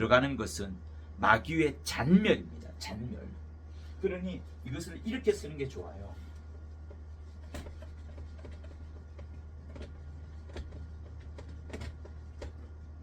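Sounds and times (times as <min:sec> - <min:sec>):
low electrical hum: 0:00.0 - 0:13.0
pen scratching strokes: 0:06.5 - 0:12.7.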